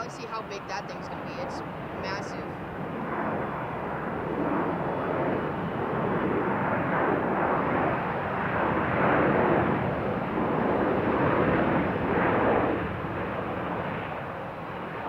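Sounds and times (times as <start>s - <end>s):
jet airliner passing overhead: 0.0s - 15.0s.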